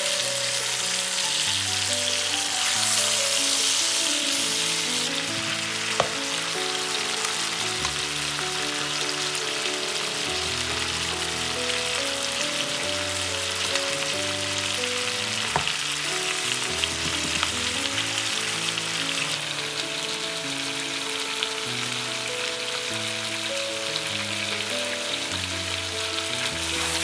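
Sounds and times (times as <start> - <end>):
chicken sizzling in hot oil: 0.0 - 27.0
soft background music: 0.0 - 27.0
vegetables frying gently: 0.0 - 27.0
spatula knocking against pan: 6.0 - 6.2, 16.9 - 17.5.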